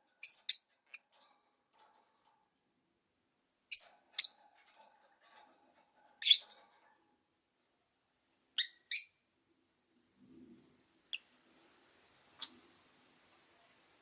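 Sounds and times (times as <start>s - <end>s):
lovebirds shrill chirps: 0.2s - 0.7s, 3.7s - 4.4s, 8.6s - 9.2s.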